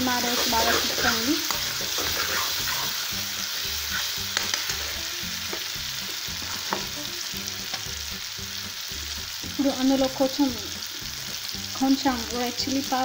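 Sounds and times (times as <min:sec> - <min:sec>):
vegetables sizzling in a wok: 0:00.0 - 0:13.0
metal spatula scraping: 0:00.1 - 0:05.7.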